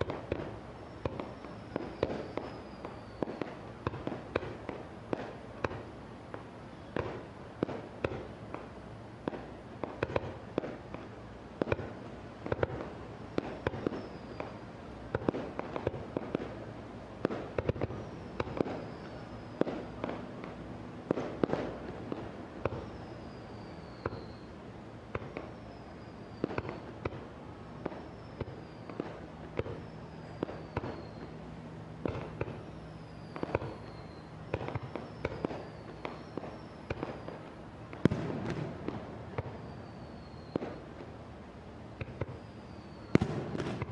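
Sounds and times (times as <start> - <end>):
fireworks bangs: 0.0 - 24.5, 25.1 - 31.3, 32.0 - 41.2, 42.0 - 43.9
high falling whistles: 0.6 - 3.6, 13.6 - 14.7, 17.8 - 20.2, 22.6 - 24.6, 25.4 - 27.0, 27.6 - 31.4, 32.0 - 37.4, 38.0 - 40.9, 42.1 - 43.9.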